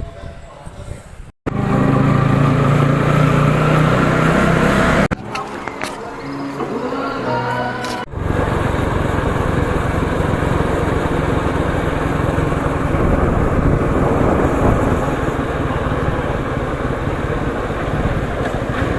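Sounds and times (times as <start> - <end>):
wind buffeting microphone: 0.0 - 1.4, 8.1 - 18.9
motorcycle engine running: 1.5 - 5.1, 8.1 - 18.9.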